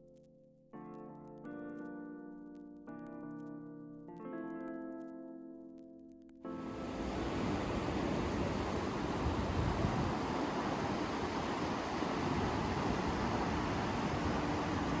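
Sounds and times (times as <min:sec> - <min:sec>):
waterfall rushing: 0:06.7 - 0:15.0.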